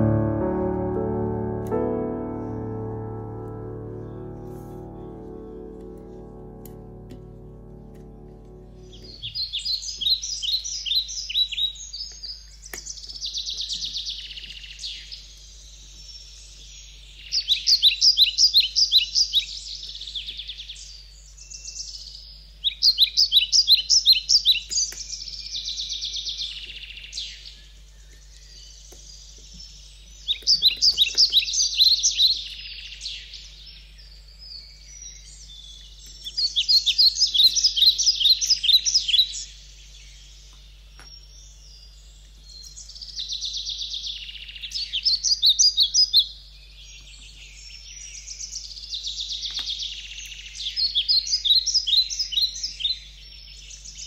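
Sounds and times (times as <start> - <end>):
low steady hum: 0.0 - 10.6
songbird chirping and trilling: 0.0 - 54.0.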